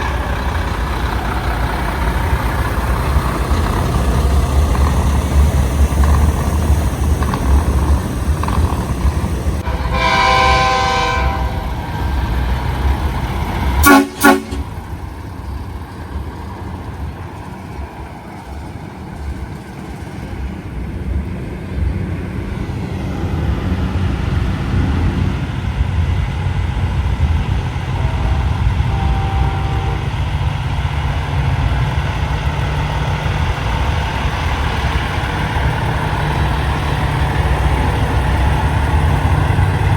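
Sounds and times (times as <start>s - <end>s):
truck diesel engines rumbling: 0.0s - 39.9s
air horn blasts: 9.6s - 11.8s, 13.8s - 14.8s, 27.9s - 30.2s.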